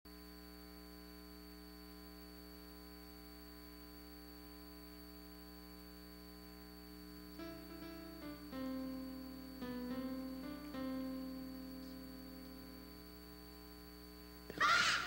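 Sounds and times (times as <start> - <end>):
faint mains hum: 0.1 - 15.0
light hiss: 4.0 - 15.0.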